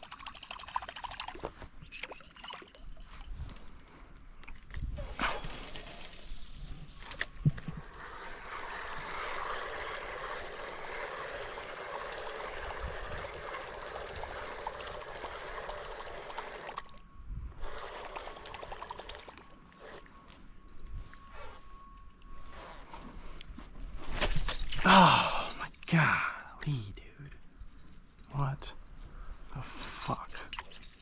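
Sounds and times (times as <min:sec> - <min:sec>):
water pouring: 0:00.0 - 0:03.6.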